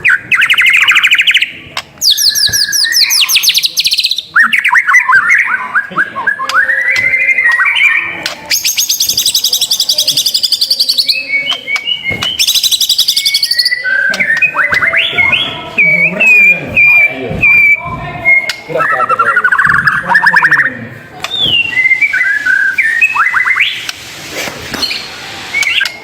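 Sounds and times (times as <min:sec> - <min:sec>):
songbird singing: 0:00.0 - 0:23.9.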